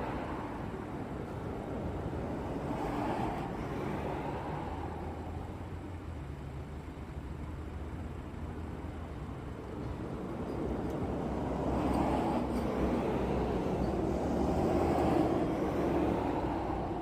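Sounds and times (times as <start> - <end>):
vehicle passing by: 11.2 - 17.0.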